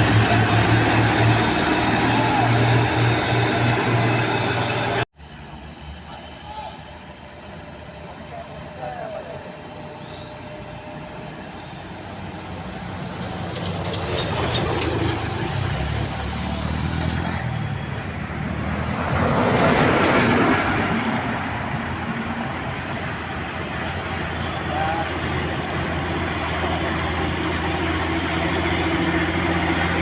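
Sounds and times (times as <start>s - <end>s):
vehicle engine running: 0.0s - 5.0s
road traffic noise: 0.0s - 30.0s.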